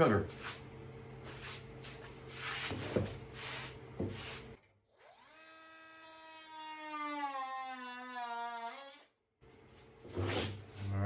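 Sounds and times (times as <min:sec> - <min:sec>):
power tool motor whine: 0:04.9 - 0:09.0.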